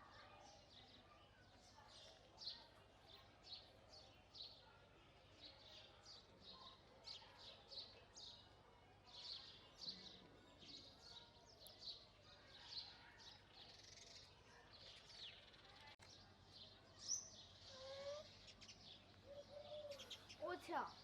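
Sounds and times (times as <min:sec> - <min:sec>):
sparrows chirping: 0:00.0 - 0:21.0.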